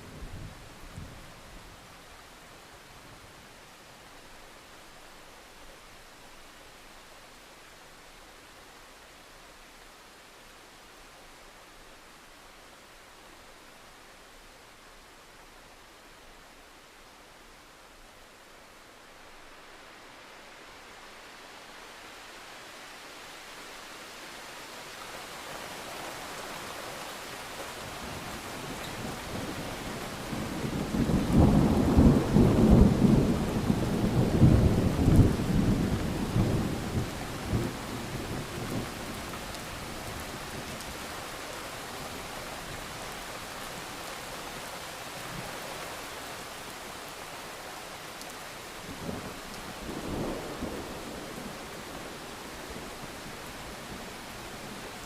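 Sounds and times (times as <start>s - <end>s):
steady rain: 0.0s - 55.0s
rolling thunder: 30.4s - 38.9s.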